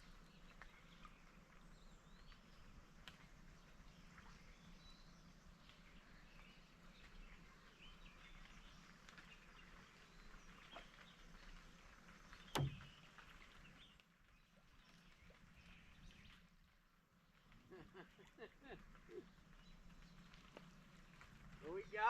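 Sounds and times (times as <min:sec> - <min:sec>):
sharp knock: 0:12.6 - 0:12.9.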